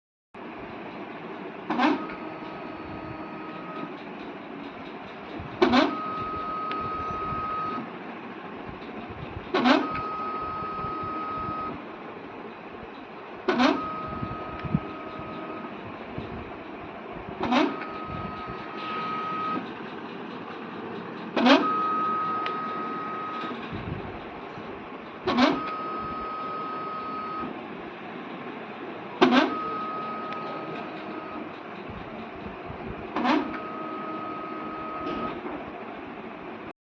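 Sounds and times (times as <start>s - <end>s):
machine click: 17.4s - 23.9s, 29.2s - 32.5s.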